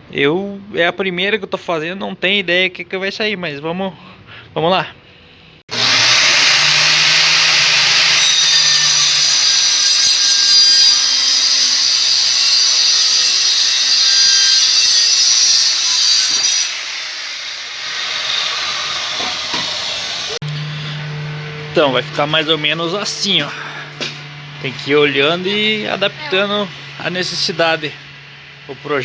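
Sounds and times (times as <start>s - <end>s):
power saw cutting wood: 5.7s - 28.6s.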